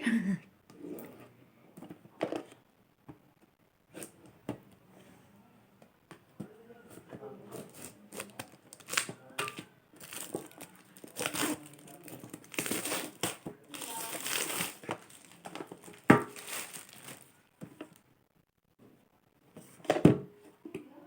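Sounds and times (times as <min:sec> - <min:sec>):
cardboard scraping and rustling: 0:10.0 - 0:17.3.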